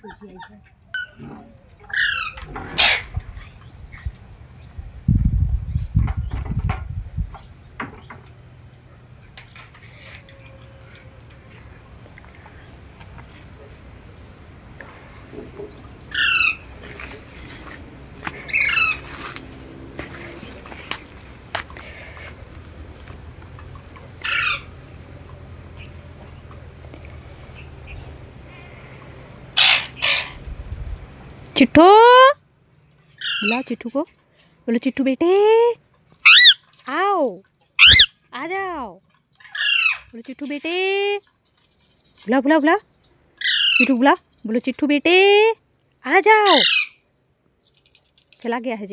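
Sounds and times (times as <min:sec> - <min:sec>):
parrot squawking: 0:00.0 - 0:03.2, 0:16.1 - 0:17.1, 0:18.4 - 0:19.3, 0:24.2 - 0:24.8, 0:29.6 - 0:30.4, 0:33.2 - 0:33.7, 0:36.2 - 0:36.6, 0:37.8 - 0:38.2, 0:39.4 - 0:40.1, 0:43.4 - 0:44.0, 0:46.4 - 0:47.0.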